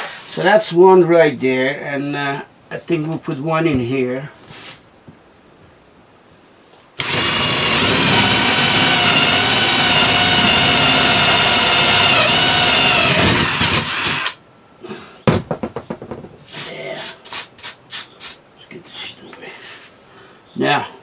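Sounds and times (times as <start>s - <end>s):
power drill boring into floor: 7.0s - 14.4s
short knocks: 15.3s - 16.5s.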